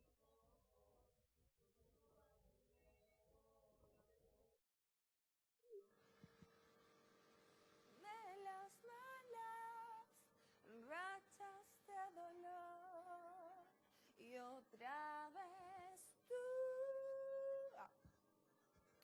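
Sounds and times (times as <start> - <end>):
woman singing with vibrato: 8.0 - 17.9.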